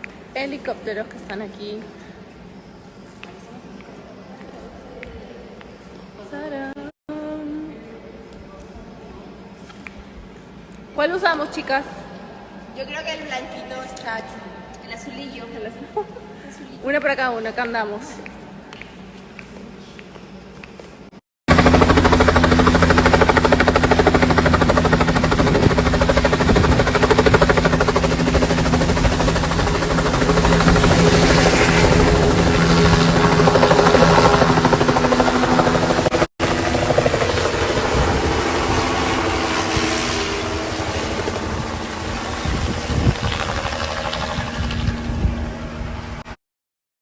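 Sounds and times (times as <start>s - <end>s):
helicopter rotor chop: 21.5s - 46.4s.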